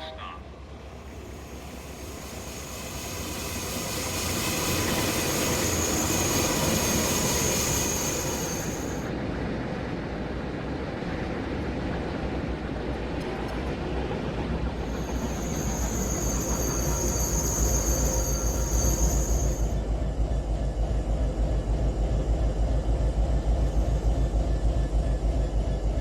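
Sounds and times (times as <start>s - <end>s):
train rumbling along track: 0.0s - 26.0s
high-pitched squeal: 0.9s - 9.1s, 14.8s - 19.8s.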